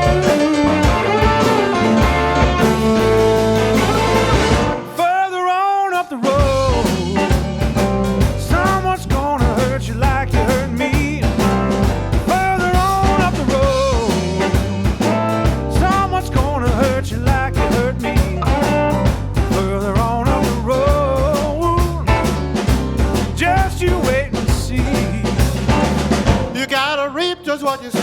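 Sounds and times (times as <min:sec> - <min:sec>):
lead electric guitar: 0:00.0 - 0:05.0, 0:06.4 - 0:20.8
blues band playing: 0:00.0 - 0:28.0.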